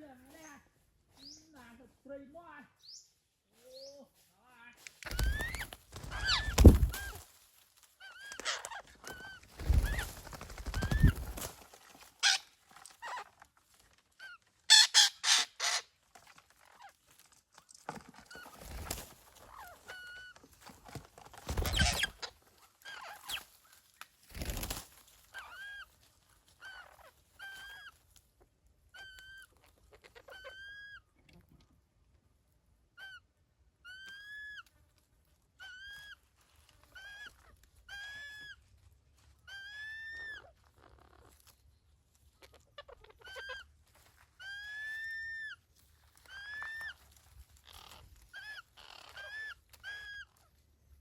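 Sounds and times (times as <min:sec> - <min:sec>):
bird calling: 0:05.0 - 0:07.2.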